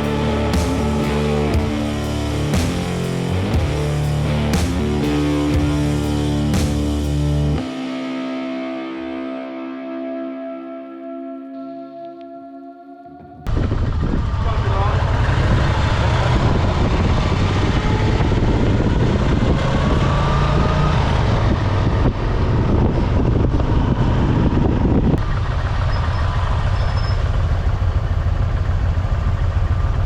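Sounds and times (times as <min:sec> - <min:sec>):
motorcycle engine rumble: 0:00.0 - 0:07.9, 0:13.2 - 0:30.0
wind and road noise: 0:13.5 - 0:30.0.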